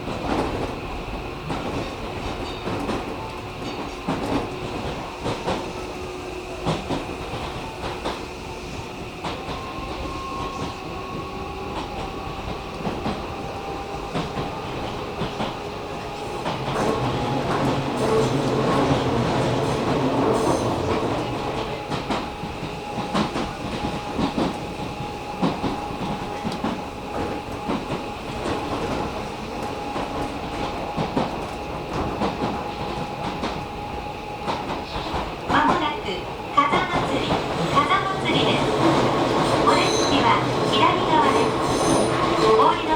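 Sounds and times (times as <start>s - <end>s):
train wheels clicking over rail joints: 9.2s - 33.7s.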